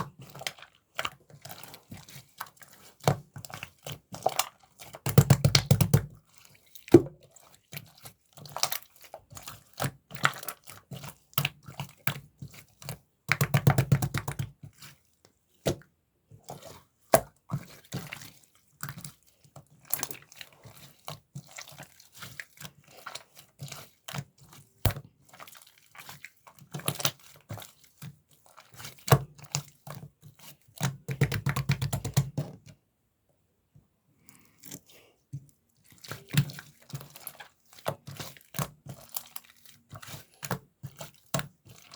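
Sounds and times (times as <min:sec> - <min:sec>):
slime squishing: 0:00.0 - 0:32.8, 0:34.2 - 0:41.9.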